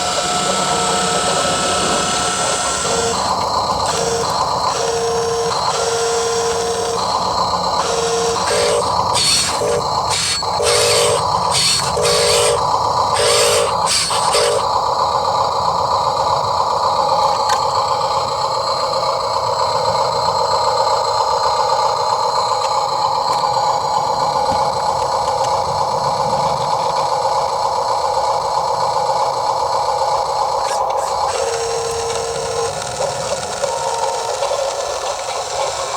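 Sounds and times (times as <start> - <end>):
electric motors and gearbox whining: 0.0 - 35.9.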